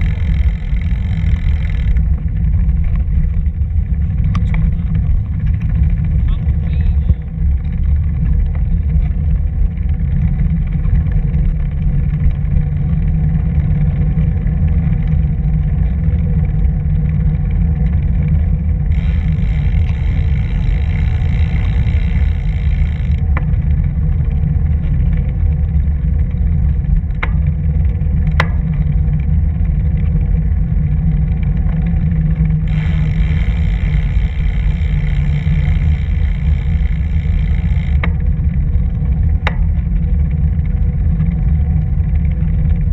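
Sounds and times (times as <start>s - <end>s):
sharp ticks: 0.0s - 3.3s, 17.1s - 24.1s, 31.4s - 40.3s
tyre rumble on paved path: 0.0s - 42.9s
wind buffeting microphone: 0.0s - 42.9s.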